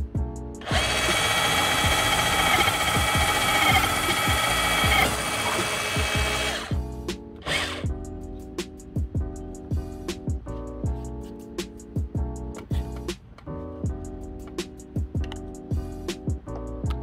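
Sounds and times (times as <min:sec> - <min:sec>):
rotary hammer drilling into wood: 0:00.6 - 0:06.8, 0:07.4 - 0:07.9.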